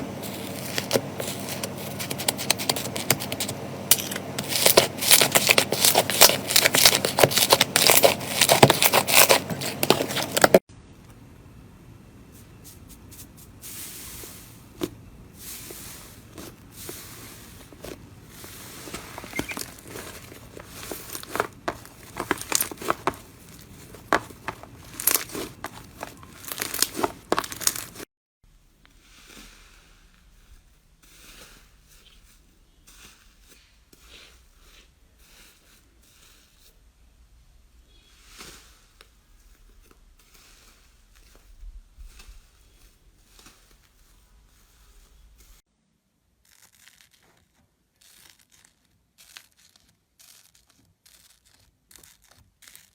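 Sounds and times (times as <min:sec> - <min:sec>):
soft slime squishes: 0:00.0 - 0:03.6, 0:04.4 - 0:11.1, 0:12.2 - 0:28.0, 0:28.8 - 0:45.6, 0:46.4 - 0:52.9
slime crackling and popping: 0:00.4 - 0:10.6, 0:18.8 - 0:28.0, 0:46.4 - 0:52.9.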